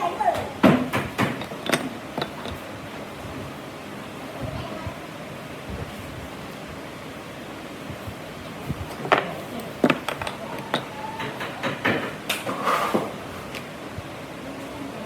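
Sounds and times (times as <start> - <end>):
steady background hiss: 0.0 - 15.0
wood and tools knocking: 0.3 - 2.6, 8.8 - 13.6.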